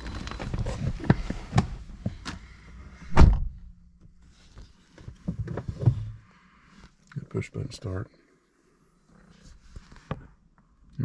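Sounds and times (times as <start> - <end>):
car door shutting: 3.1 - 3.7.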